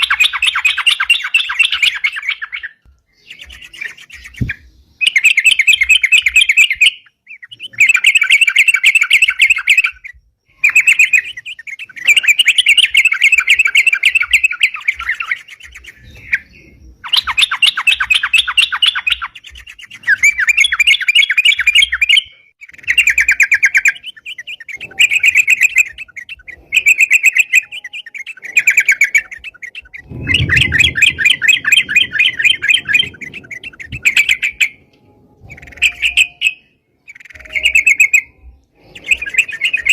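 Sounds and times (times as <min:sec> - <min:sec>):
bird singing chattering notes: 0:00.0 - 0:39.9
low rumble: 0:30.0 - 0:35.8.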